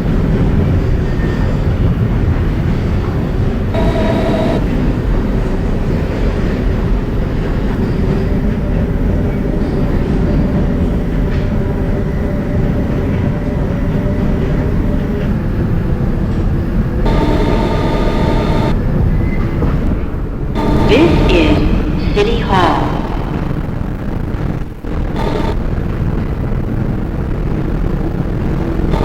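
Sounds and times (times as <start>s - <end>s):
train wheels rumbling on rail: 0.0s - 21.3s
traction motor whine: 3.8s - 4.7s, 17.1s - 18.8s, 24.9s - 25.8s.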